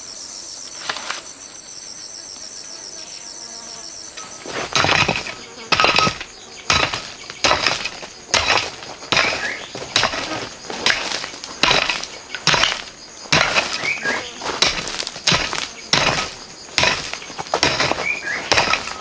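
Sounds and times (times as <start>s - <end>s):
digging tool striking gravel: 4.2s - 19.0s.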